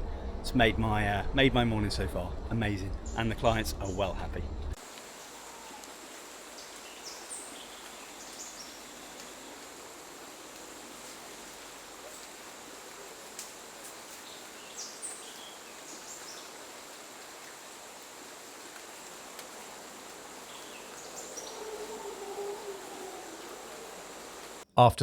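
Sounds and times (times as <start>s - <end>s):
even hiss: 0.5s - 24.6s
high insect drone: 0.6s - 24.6s
low wavering animal call: 20.8s - 24.6s.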